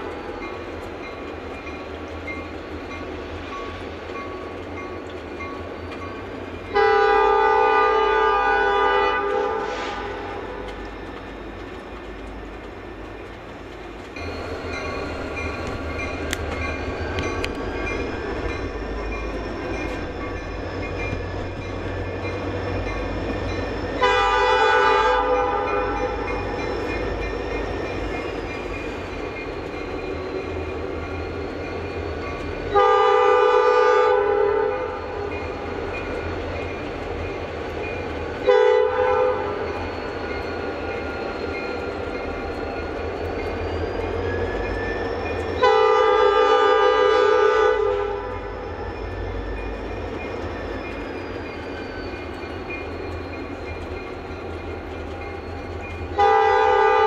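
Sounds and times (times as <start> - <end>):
train rumbling: 0.0 - 57.0
train horn blasts: 6.7 - 10.7, 24.0 - 26.2, 32.7 - 35.2, 38.4 - 39.6, 45.6 - 48.6, 56.2 - 57.0.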